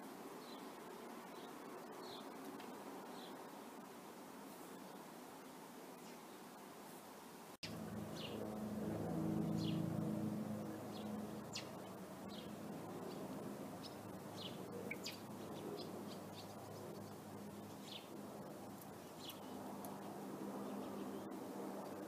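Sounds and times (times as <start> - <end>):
birds chirping: 7.6 - 8.6, 9.2 - 22.0.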